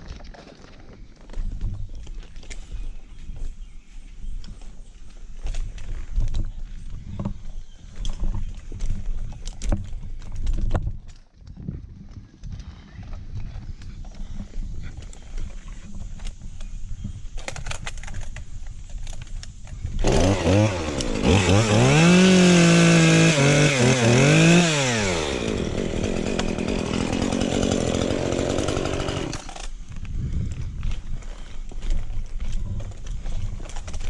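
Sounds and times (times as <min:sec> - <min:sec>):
chainsaw revving: 0:20.0 - 0:29.7.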